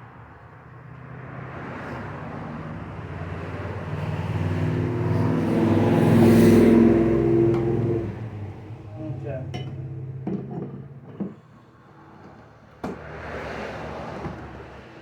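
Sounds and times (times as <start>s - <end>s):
road noise: 0.0s - 15.0s
vehicle engine approaching: 1.0s - 12.2s.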